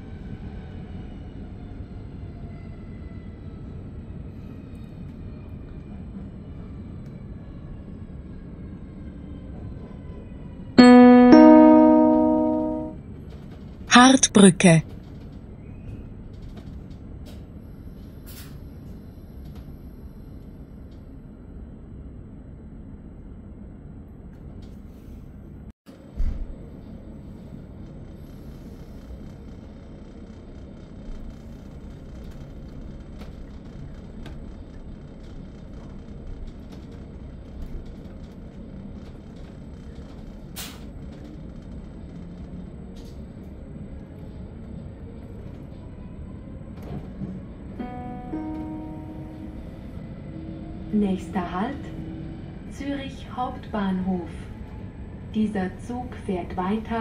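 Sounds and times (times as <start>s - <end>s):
two-tone bell chime: 10.8s - 13.0s
faint train rumble: 14.6s - 57.0s.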